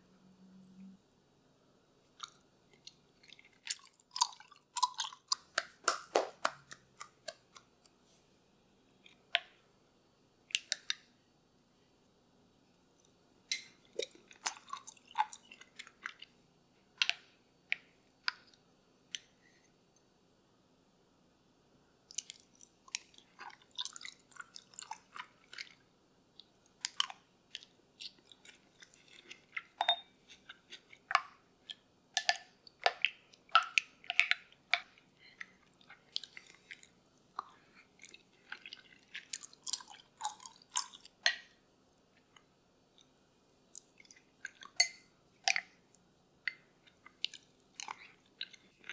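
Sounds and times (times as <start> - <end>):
faint steady hum: 0.0 - 48.9
crunchy food chewing: 2.1 - 7.7, 22.1 - 25.8, 26.4 - 43.1, 43.7 - 48.9.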